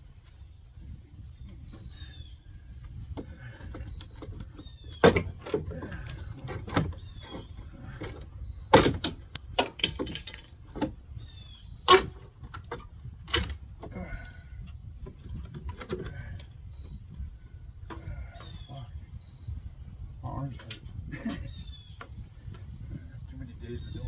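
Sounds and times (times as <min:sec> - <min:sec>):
boards knocking and cracking: 0:03.2 - 0:11.0.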